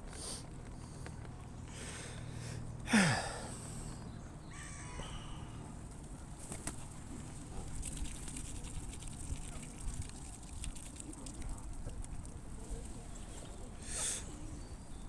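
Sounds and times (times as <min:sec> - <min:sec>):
birds calling: 0:01.6 - 0:06.8.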